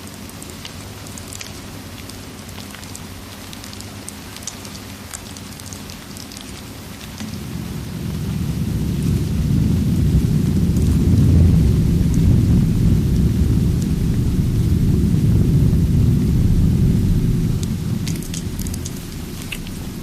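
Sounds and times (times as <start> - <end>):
rain hiss: 0.0 - 20.0
small crackles and pops: 0.0 - 20.0
thunder rumbling: 6.8 - 20.0.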